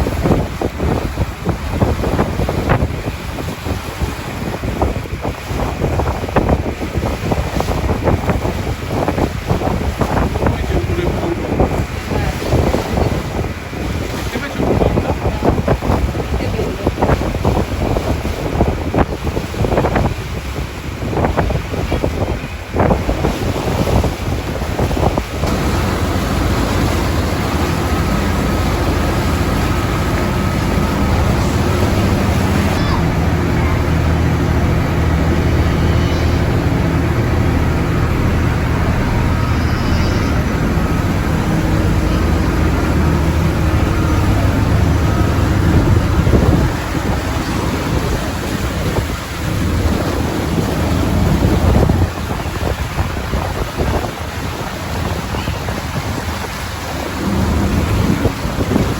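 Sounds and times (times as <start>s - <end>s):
boat engine running: 0.0s - 58.9s
wind buffeting microphone: 0.0s - 58.9s.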